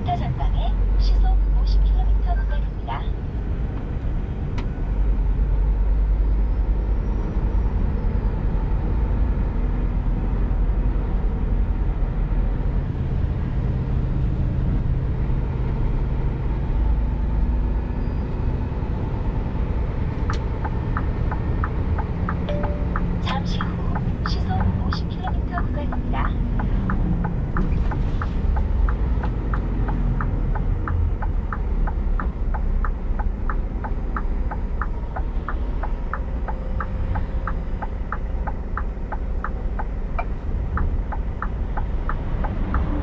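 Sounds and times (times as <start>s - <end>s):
truck diesel engine running: 8.0s - 43.0s
turn indicator ticking: 18.9s - 43.0s.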